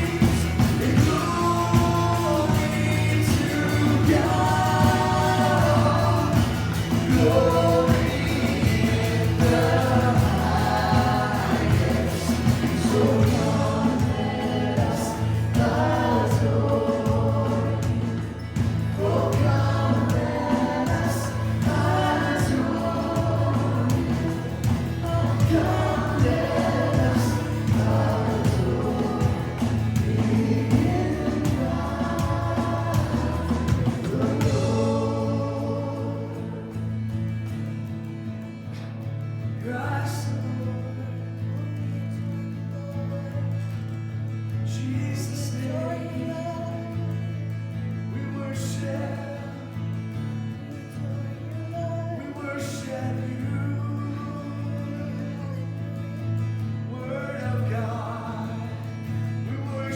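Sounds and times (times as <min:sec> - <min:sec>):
band accompaniment with bass: 0:00.0 - 0:37.8
group singing worship song: 0:00.0 - 0:37.9, 0:48.1 - 0:59.9.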